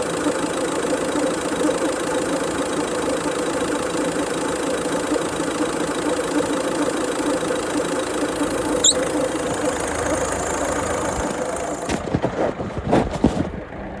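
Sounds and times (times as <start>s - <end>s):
car engine idling: 0.0s - 14.0s
engine knocks: 0.0s - 14.0s
sharp high-pitched chirp: 8.8s - 9.2s.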